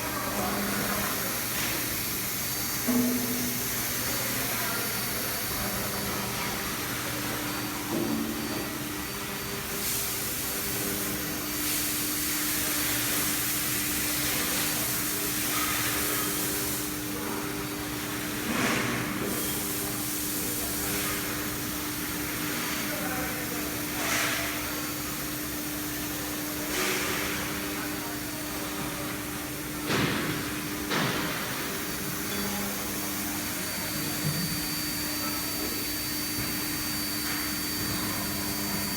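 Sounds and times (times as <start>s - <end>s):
cnc router machine humming: 0.0s - 18.5s, 30.4s - 38.9s.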